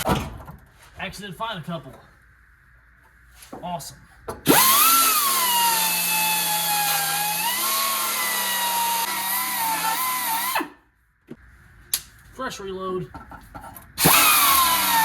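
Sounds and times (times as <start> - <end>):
power tool whining on sheet metal: 4.5 - 10.7, 14.0 - 15.0.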